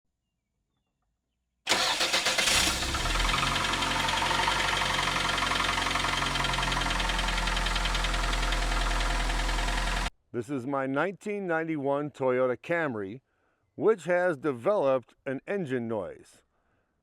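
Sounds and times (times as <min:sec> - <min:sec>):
car engine cranking and idling: 0:01.7 - 0:10.1
rapid even engine ticking: 0:01.7 - 0:10.1.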